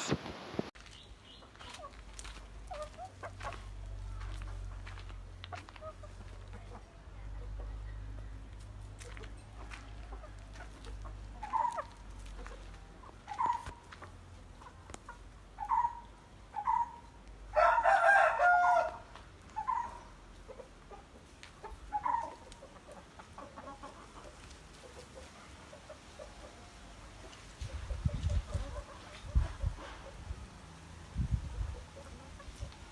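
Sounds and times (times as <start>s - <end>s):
chickens clucking: 0.0s - 0.7s, 2.7s - 17.1s, 19.5s - 30.4s, 31.4s - 32.9s
rooster crowing: 17.5s - 19.0s.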